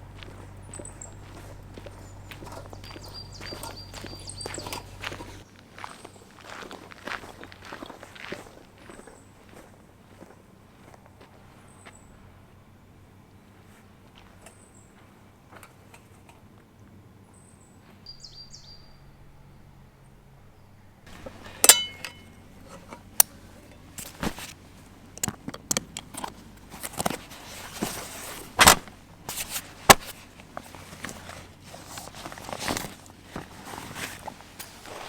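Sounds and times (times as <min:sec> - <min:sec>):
faint high chirps: 0:00.7 - 0:05.1
knock with metallic ring: 0:21.6 - 0:22.3.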